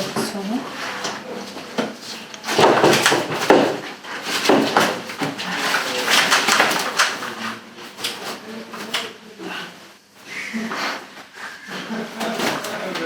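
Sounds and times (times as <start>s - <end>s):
owl rustling and flapping: 2.2s - 8.9s, 11.7s - 13.0s.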